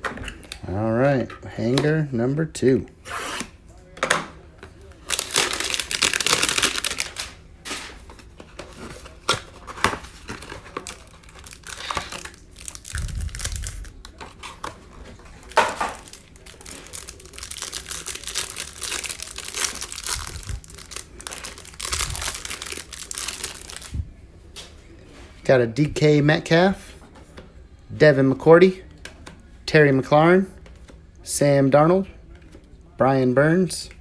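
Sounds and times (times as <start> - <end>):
packaging tearing and crinkling: 4.8 - 23.9.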